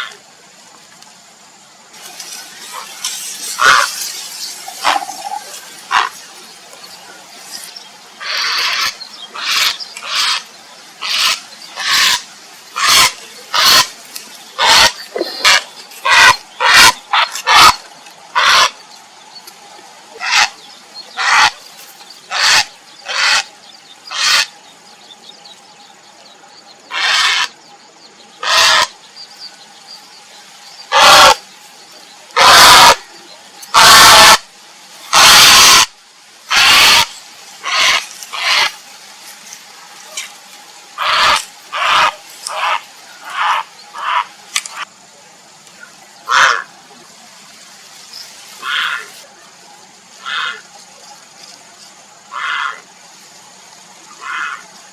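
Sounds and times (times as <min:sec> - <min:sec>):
heron harsh rasping croaks: 0:03.6 - 0:03.9, 0:04.8 - 0:06.2, 0:08.2 - 0:10.4, 0:11.0 - 0:12.2, 0:12.8 - 0:13.9, 0:14.6 - 0:17.8, 0:18.4 - 0:18.8, 0:21.2 - 0:21.6, 0:22.3 - 0:23.5, 0:24.1 - 0:24.5, 0:26.9 - 0:27.5, 0:28.4 - 0:28.9, 0:30.9 - 0:31.4, 0:33.8 - 0:34.4, 0:36.5 - 0:38.7, 0:41.0 - 0:44.3, 0:46.3 - 0:46.7, 0:52.3 - 0:52.8.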